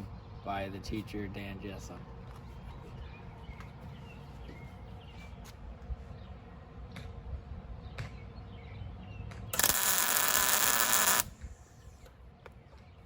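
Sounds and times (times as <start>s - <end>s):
welding arc burst: 9.6s - 11.4s.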